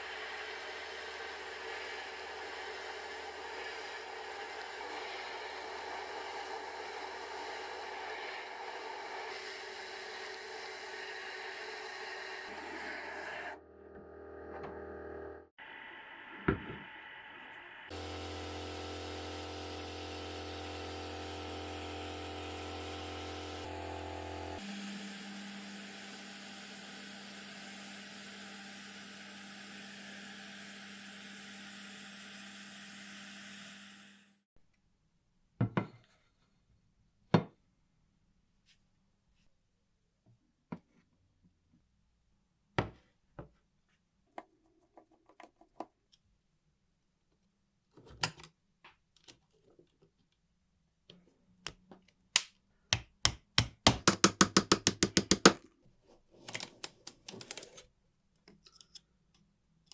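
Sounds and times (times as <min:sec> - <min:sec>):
workshop tool hissing and humming: 0:00.0 - 0:13.6, 0:17.2 - 0:34.4.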